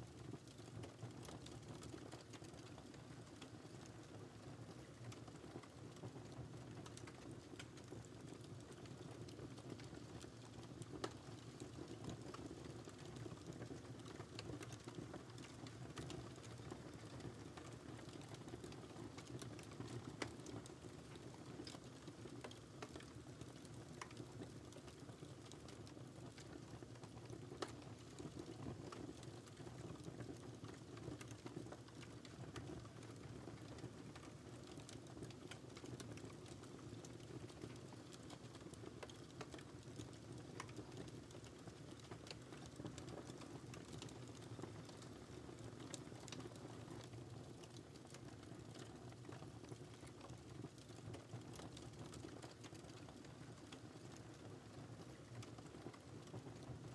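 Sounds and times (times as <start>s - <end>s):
wood fire crackling: 0.1s - 56.9s
fire snaps and pops: 0.2s - 56.9s.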